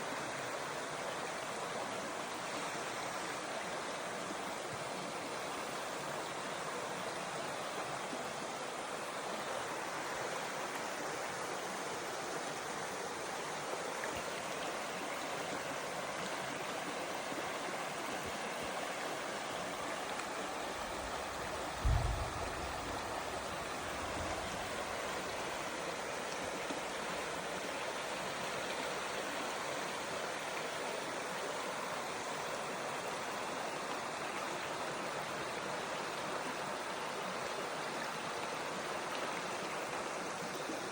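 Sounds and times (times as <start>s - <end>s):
water splashing over waterfall: 7.9s - 34.9s
low thump: 21.8s - 23.3s.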